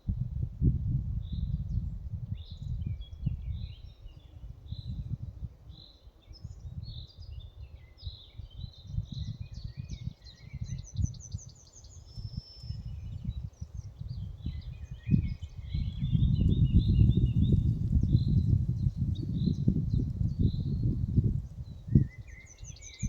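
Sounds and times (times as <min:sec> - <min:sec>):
wind gusting on microphone: 0:00.0 - 0:23.0
songbirds chirping and singing: 0:02.4 - 0:23.0.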